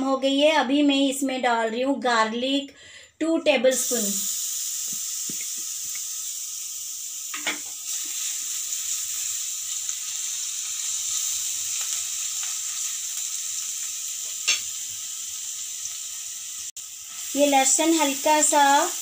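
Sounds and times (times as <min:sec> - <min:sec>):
garlic sizzling in oil: 0:03.7 - 0:19.0.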